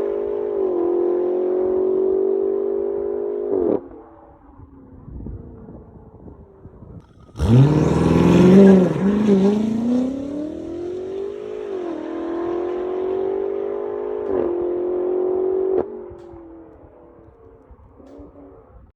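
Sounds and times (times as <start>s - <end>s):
car engine accelerating hard: 7.0s - 16.3s.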